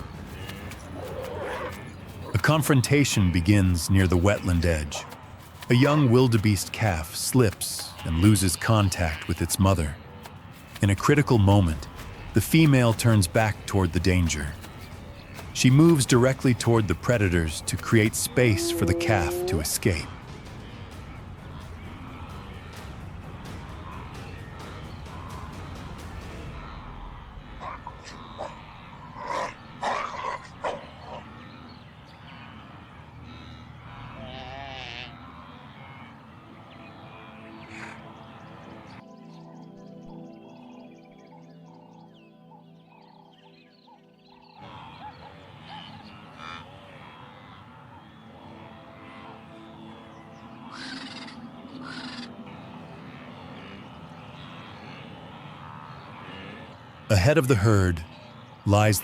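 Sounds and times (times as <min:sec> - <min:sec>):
harsh animal calls: 0:00.0 - 0:39.0, 0:44.4 - 0:59.0
wavering animal call: 0:10.8 - 0:22.9, 0:26.5 - 0:39.0, 0:44.6 - 0:58.7
short wild animal calls: 0:50.7 - 0:52.4.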